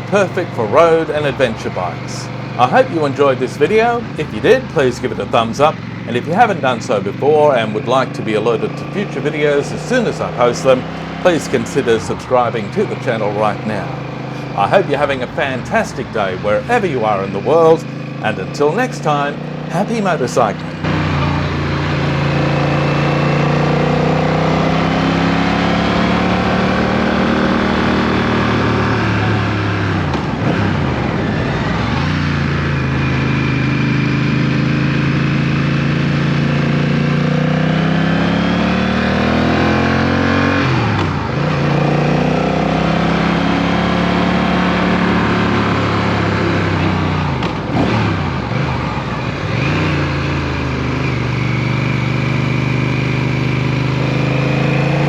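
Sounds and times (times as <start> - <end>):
motorcycle engine changing gear: 0.0 - 29.4.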